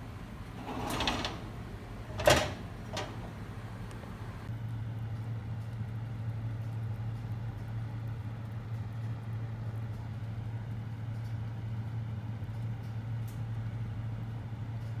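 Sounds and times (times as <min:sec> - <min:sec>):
low electrical hum: 0:00.0 - 0:04.5.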